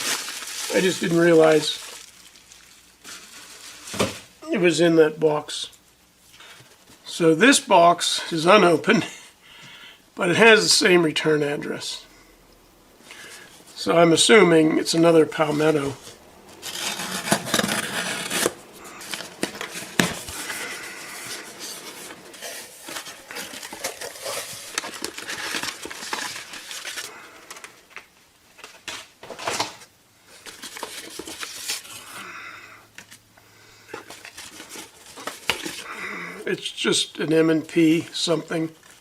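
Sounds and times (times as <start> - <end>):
packaging rustling and scraping: 0.0 - 4.4, 15.3 - 32.2, 33.9 - 35.9, 38.6 - 39.0.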